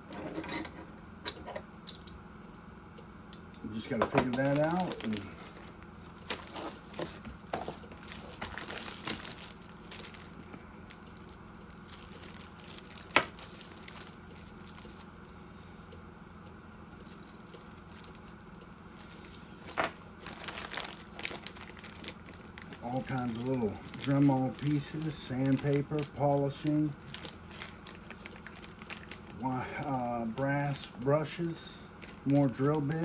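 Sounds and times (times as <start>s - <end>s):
packaging crinkling: 4.2s - 15.2s, 16.9s - 29.4s.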